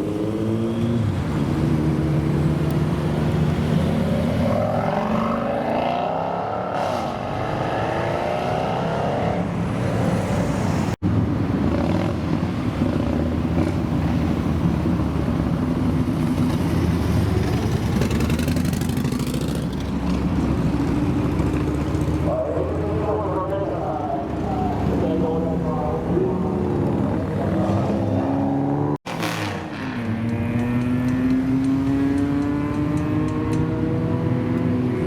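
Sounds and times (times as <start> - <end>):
car engine revving up: 27.4 - 35.0.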